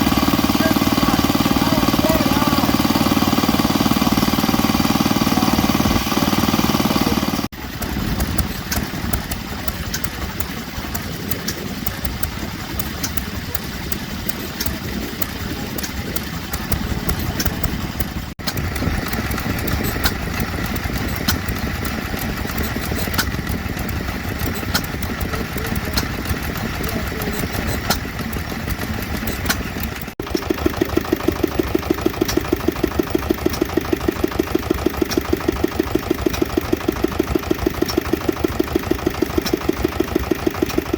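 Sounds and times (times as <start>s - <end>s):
stationary oil engines running: 0.0s - 40.9s.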